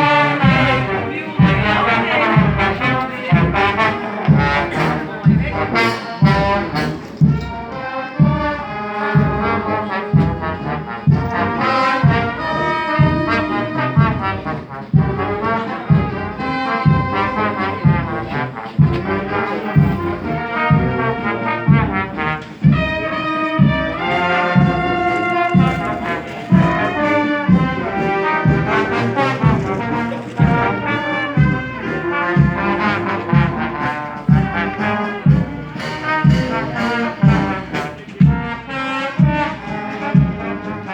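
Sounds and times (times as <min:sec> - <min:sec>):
bass drum beat: 0:00.0 - 0:40.8
brass band playing march: 0:00.0 - 0:40.9.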